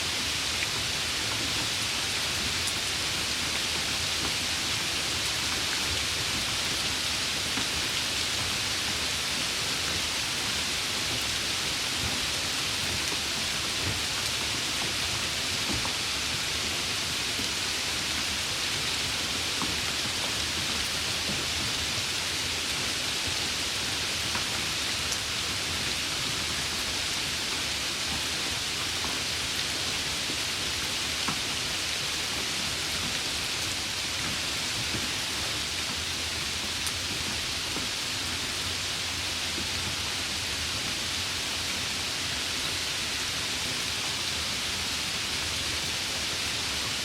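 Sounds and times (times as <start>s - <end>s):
rain hissing: 0.0s - 47.0s.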